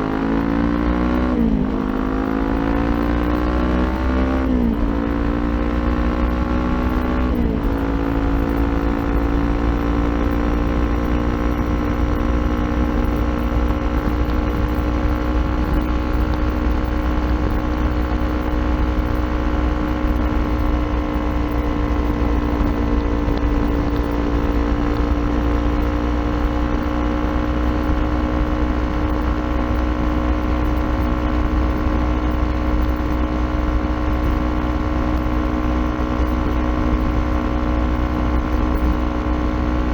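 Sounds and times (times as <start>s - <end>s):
low wind rumble: 0.0s - 39.9s
motorcycle engine revving: 0.0s - 39.9s.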